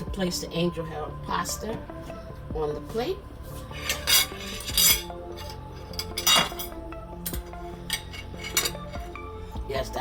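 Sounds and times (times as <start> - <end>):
background music: 0.0 - 10.0
utensils clinking on a plate: 3.7 - 9.3.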